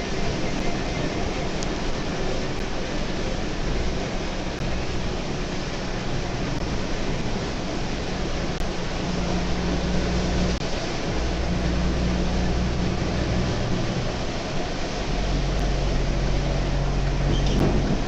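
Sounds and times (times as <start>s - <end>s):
car engine hum: 0.0s - 18.0s
road and wind noise: 0.0s - 18.0s.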